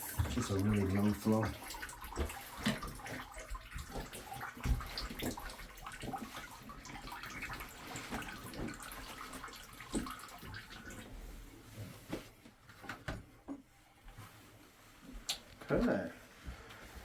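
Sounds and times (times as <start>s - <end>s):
water running from tap: 0.0s - 11.4s.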